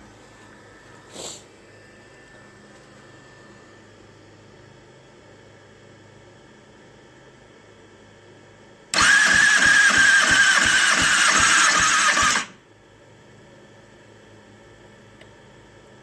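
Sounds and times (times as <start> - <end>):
engine cranking on starter: 9.0 - 12.6.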